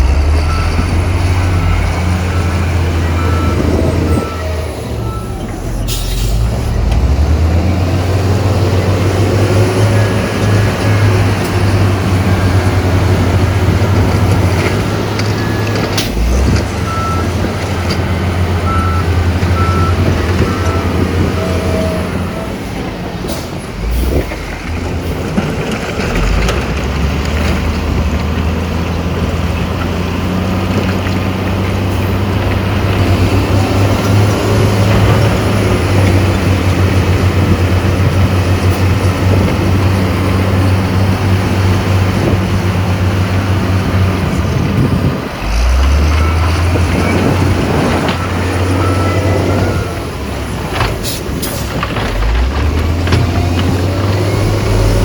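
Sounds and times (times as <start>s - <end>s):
high reversing beeps: 0.0s - 6.9s
diesel engine drone: 0.0s - 55.0s.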